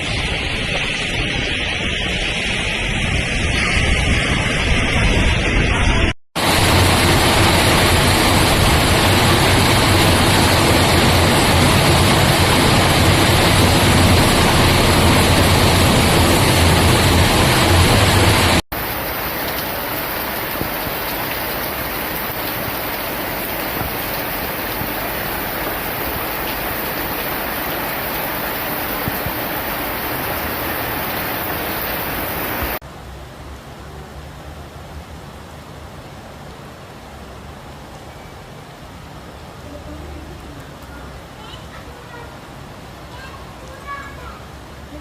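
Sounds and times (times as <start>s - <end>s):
heavy rain rushing: 0.0s - 34.0s.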